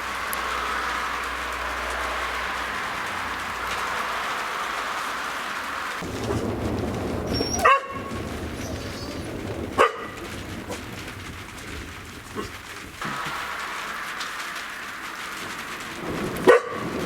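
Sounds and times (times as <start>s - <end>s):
low rumble of thunder: 0.0s - 17.0s
dog barking: 7.3s - 10.8s, 16.4s - 17.0s.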